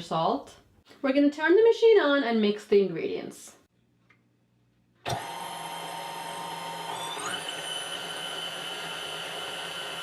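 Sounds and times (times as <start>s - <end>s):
stand mixer motor whining: 5.1s - 10.0s.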